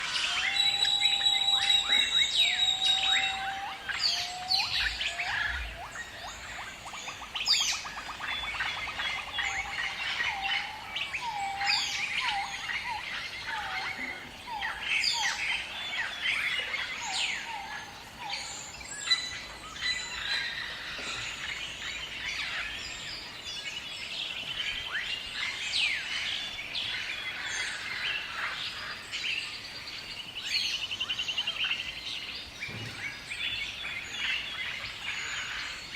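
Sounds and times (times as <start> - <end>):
birds chirping and trilling: 0.0 - 35.9.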